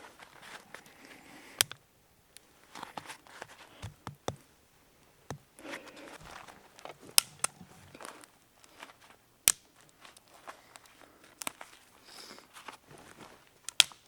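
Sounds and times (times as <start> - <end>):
rustling handling noise: 2.6 - 13.7.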